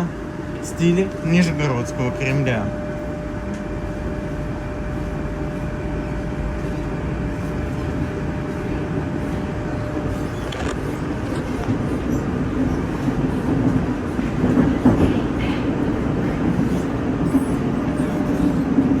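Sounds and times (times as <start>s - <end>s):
thin steady whine: 0.0s - 11.7s
train wheels and motors rumbling: 0.0s - 19.0s.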